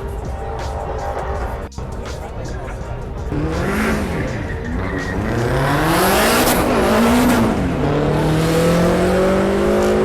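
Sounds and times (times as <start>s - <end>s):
car engine revving: 3.2s - 10.0s.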